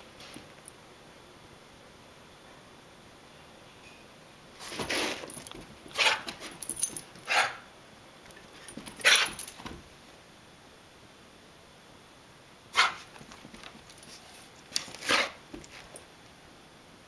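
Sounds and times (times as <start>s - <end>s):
dog hiccuping: 7.3s - 7.6s, 12.8s - 13.0s.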